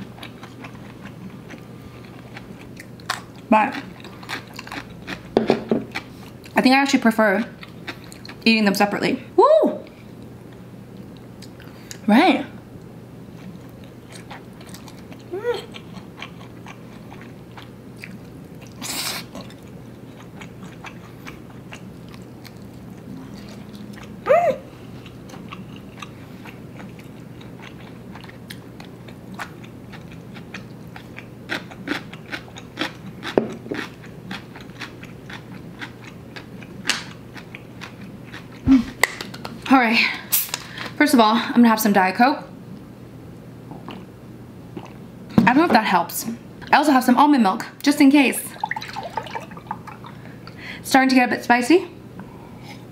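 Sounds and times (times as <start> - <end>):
person chewing and slurping noodles: 14.1 - 24.2, 24.9 - 36.7
person humming: 15.3 - 15.7, 24.2 - 24.7.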